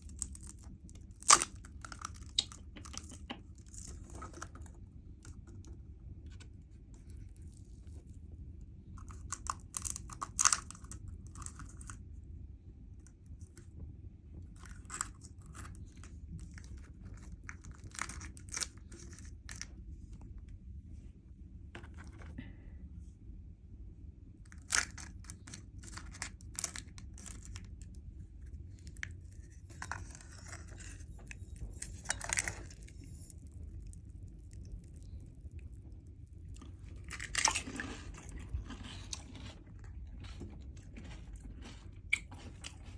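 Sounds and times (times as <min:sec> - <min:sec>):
steady low hum: 0:00.0 - 0:42.9
crunchy snack chewing: 0:28.8 - 0:42.9.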